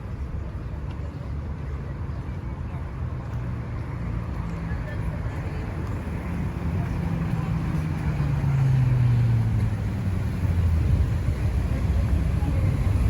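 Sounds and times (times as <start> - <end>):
vehicle passing by: 6.2 - 13.0.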